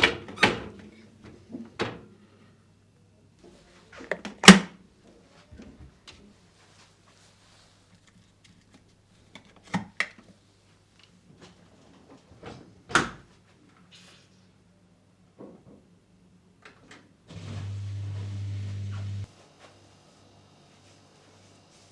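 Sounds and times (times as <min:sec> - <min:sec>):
small appliance humming: 0:17.3 - 0:19.3.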